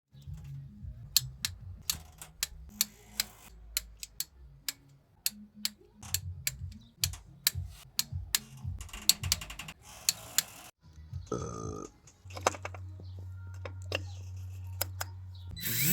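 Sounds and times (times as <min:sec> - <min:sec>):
sharp irregular clicks and taps: 0:01.1 - 0:10.5
rattling clicks: 0:01.2 - 0:10.5.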